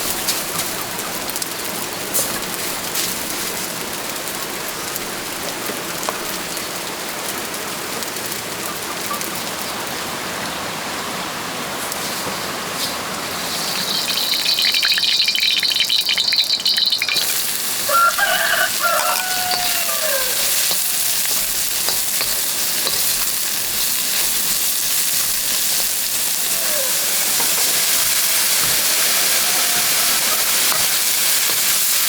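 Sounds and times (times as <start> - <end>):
steady rain hiss: 0.0 - 32.0
high-pitched rasping noise: 25.6 - 31.0
short wavering call: 26.4 - 30.5.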